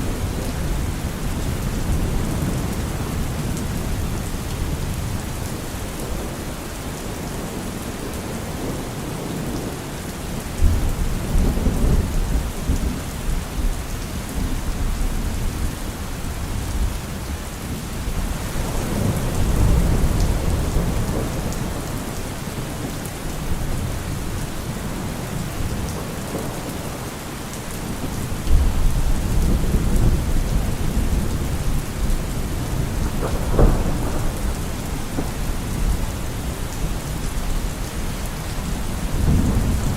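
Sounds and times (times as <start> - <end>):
steady rain falling: 0.0 - 39.9
thunder rumbling: 18.0 - 27.1, 27.9 - 39.9.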